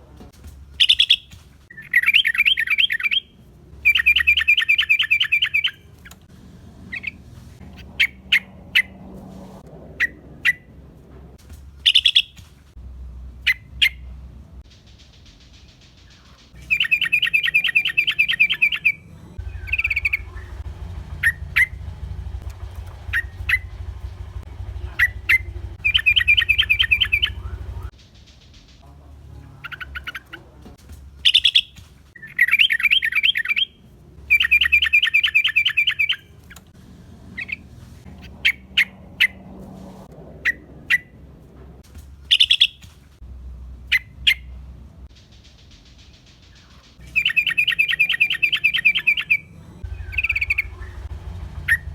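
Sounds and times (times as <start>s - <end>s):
bird chattering trills: 0.8s - 3.3s, 11.9s - 12.4s, 16.1s - 27.9s, 31.2s - 33.7s, 42.3s - 42.8s, 45.3s - 51.9s
sharp bird chirps: 0.8s - 5.9s, 11.8s - 12.4s, 14.8s - 21.8s, 24.9s - 27.9s, 31.2s - 36.4s, 42.3s - 42.8s, 45.3s - 51.9s.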